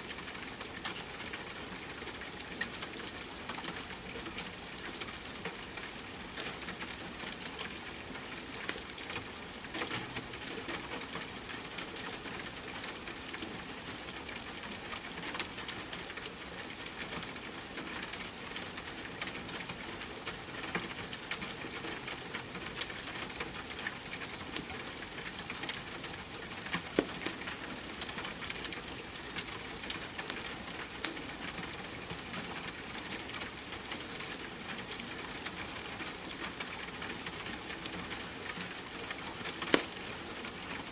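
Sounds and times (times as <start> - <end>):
rain hiss: 0.0 - 40.9
wood fire crackling: 25.3 - 31.2, 39.0 - 40.9.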